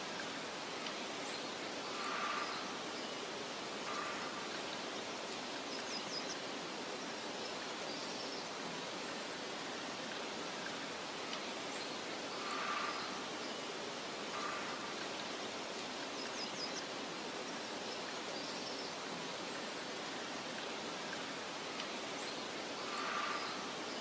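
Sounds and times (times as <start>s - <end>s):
wind through grass: 0.0s - 24.0s
faint bird chirps: 10.6s - 15.4s, 21.8s - 24.0s.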